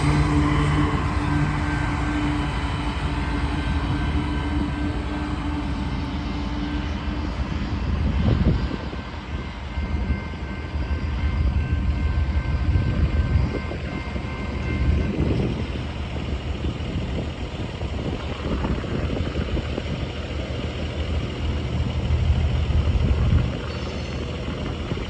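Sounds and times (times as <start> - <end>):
low engine hum: 0.0 - 9.1
freight train rumbling past: 0.0 - 25.0
wind on microphone: 7.4 - 10.0, 16.8 - 20.2.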